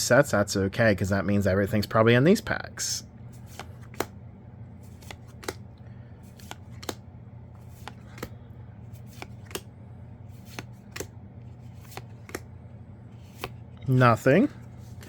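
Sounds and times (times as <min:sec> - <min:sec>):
cards snapping while flipped: 0:03.4 - 0:04.2, 0:04.8 - 0:07.0, 0:07.6 - 0:08.4, 0:09.0 - 0:09.7, 0:10.4 - 0:12.5, 0:13.2 - 0:13.6.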